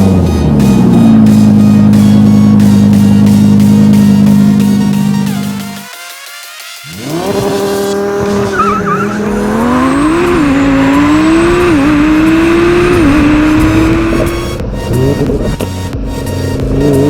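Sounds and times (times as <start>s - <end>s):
sports car engine accelerating: 0.0s - 5.8s, 6.8s - 17.0s
tyre squeal: 7.0s - 11.8s.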